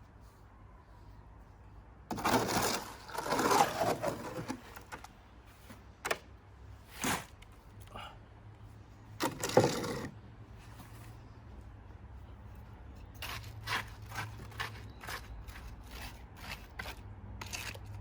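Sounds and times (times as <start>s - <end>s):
wet cement stirred and scraped: 2.1s - 4.7s, 13.2s - 18.0s.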